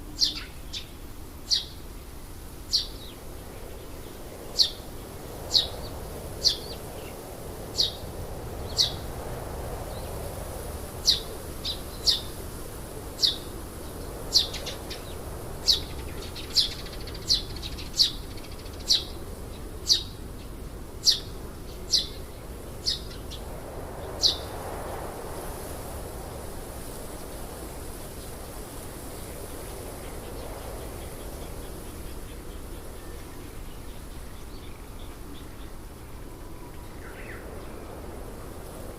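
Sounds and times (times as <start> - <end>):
steady background hiss: 0.0 - 38.9
bird chirping: 0.2 - 1.8.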